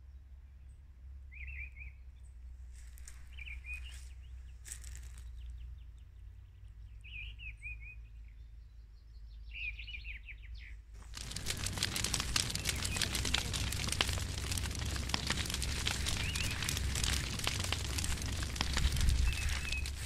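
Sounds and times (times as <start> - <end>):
songbirds twittering: 8.3 - 20.0
low wind rumble: 11.0 - 20.0.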